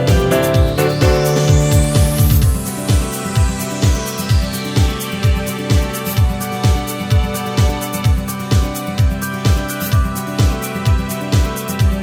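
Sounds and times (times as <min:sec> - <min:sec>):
held synth chords: 0:00.0 - 0:02.8
kick drum beat: 0:00.0 - 0:03.0
electronic music: 0:00.0 - 0:04.5.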